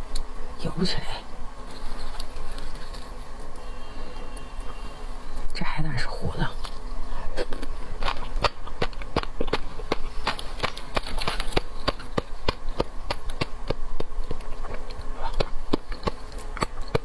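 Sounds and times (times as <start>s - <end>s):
clicking and crackling sea urchin: 1.6s - 4.5s, 6.6s - 17.0s.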